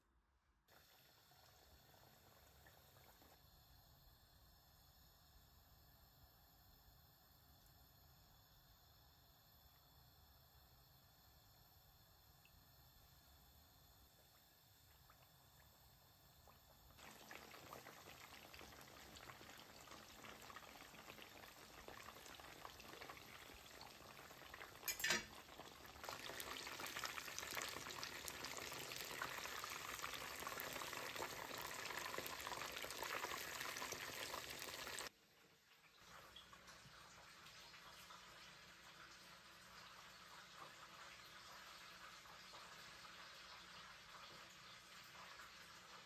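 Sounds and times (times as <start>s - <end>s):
chicken frying in hot oil: 0.7s - 3.6s, 12.3s - 46.0s.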